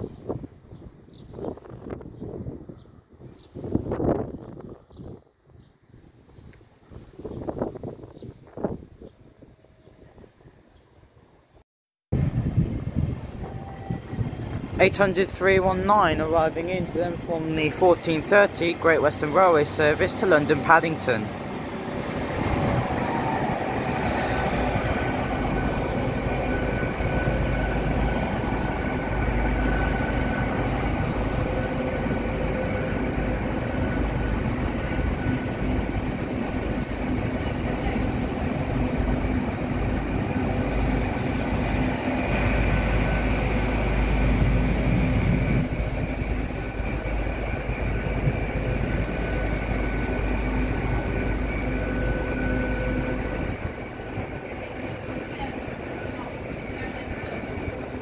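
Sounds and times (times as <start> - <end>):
train engine hum: 0.0 - 11.6, 12.2 - 58.0
train whine: 12.2 - 58.0.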